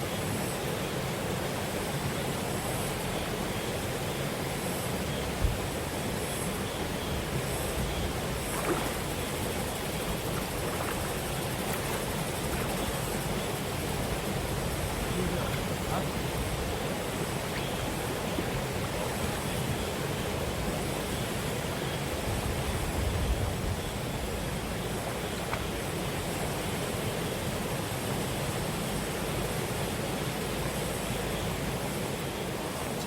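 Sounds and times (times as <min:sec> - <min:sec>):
stream flowing over rocks: 0:00.2 - 0:22.7.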